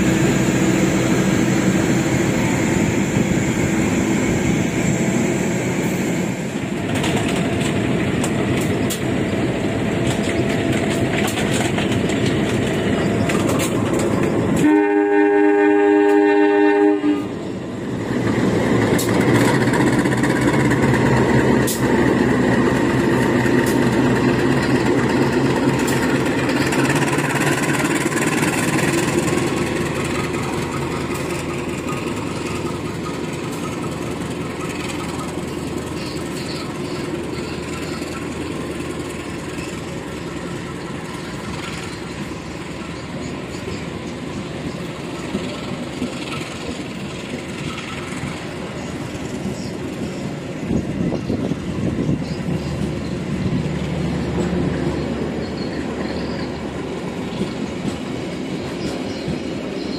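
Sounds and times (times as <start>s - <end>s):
coaches rolling on rails: 0.0s - 59.9s
locomotive running under power: 0.0s - 59.9s
locomotive horn: 14.5s - 17.5s.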